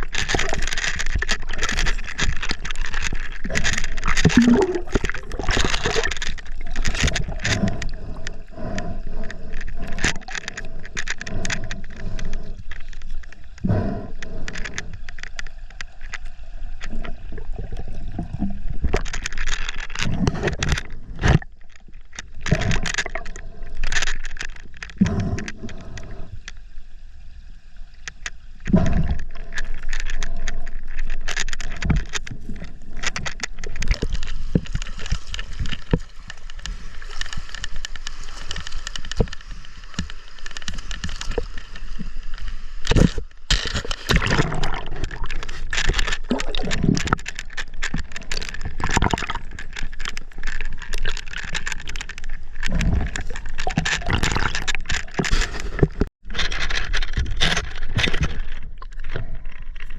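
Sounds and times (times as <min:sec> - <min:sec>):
gear knocking and scraping: 0:00.0 - 0:13.3
river water gurgling and sloshing: 0:25.6 - 0:59.9.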